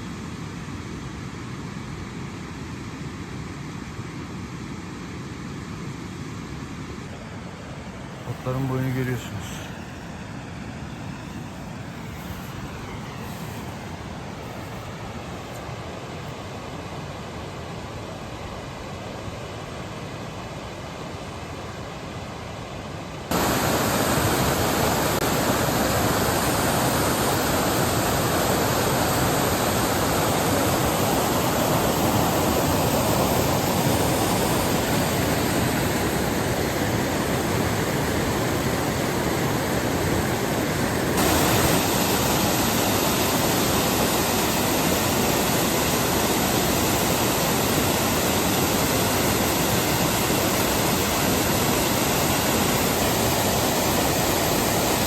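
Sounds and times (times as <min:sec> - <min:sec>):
waterfall rushing: 0:23.3 - 0:55.0.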